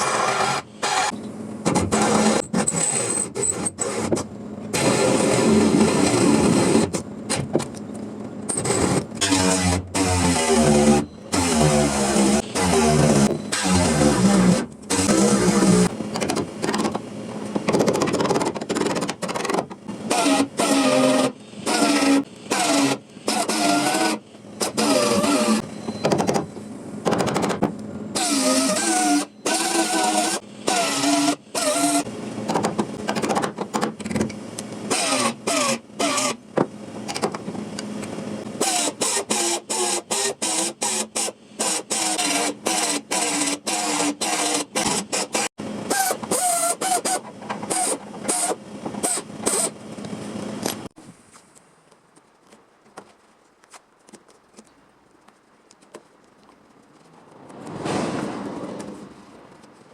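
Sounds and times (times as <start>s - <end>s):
small electric power tool motor: 8.7s - 15.9s, 20.0s - 25.6s, 28.2s - 32.1s, 38.6s - 49.8s.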